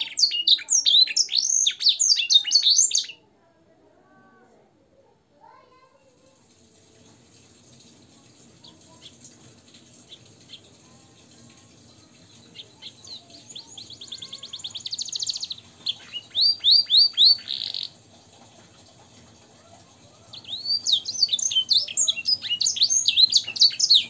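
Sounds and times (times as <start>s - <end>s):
finch singing trills and whistles: 0.0s - 3.2s, 12.3s - 18.0s, 20.4s - 24.0s.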